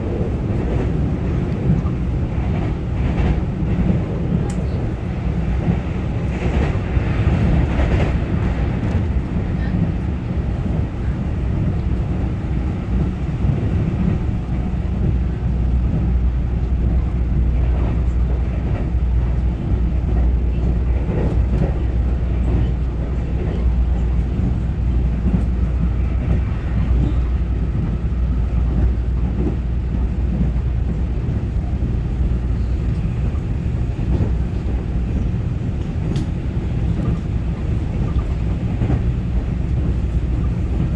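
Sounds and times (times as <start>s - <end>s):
train wheels rumbling on rail: 0.0s - 40.9s.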